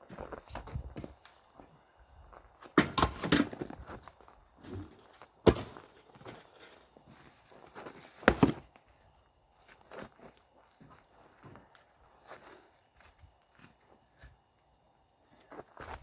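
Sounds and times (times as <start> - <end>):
axe striking wood: 2.8 - 3.6, 5.4 - 5.9, 8.2 - 8.6.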